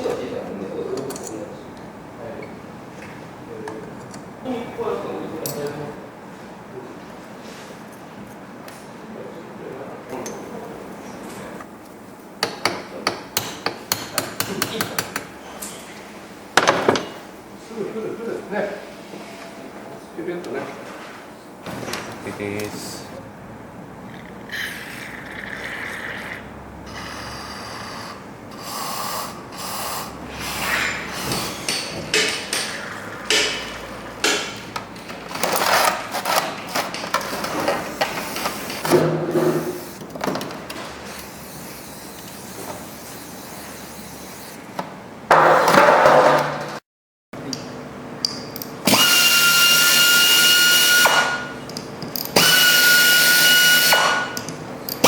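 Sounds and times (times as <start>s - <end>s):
power tool whining: 48.8s - 51.4s, 52.3s - 54.2s.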